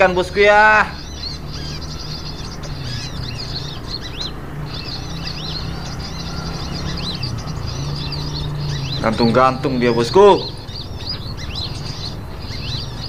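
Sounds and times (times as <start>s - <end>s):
small songbirds chirping: 0.0s - 13.0s.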